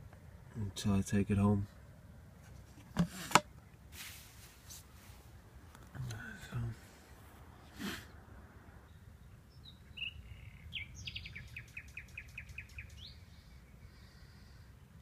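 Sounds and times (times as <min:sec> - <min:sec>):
songbird singing: 0:05.5 - 0:15.0.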